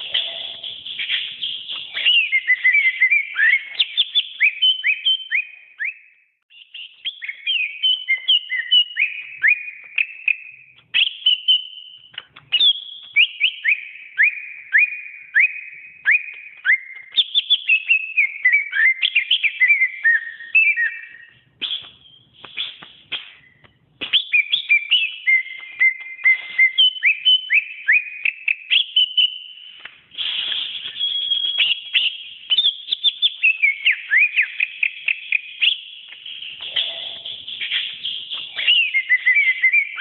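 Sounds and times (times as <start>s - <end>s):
bird singing whistled notes: 0.0s - 40.0s.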